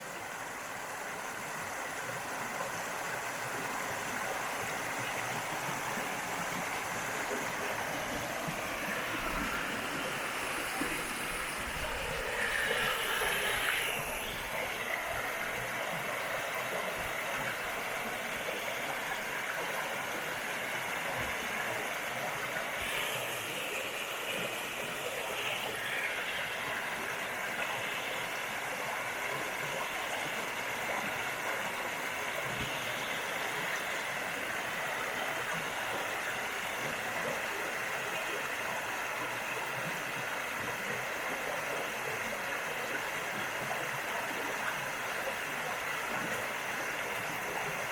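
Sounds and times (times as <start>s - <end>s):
river water rushing over rocks: 0.0s - 47.9s.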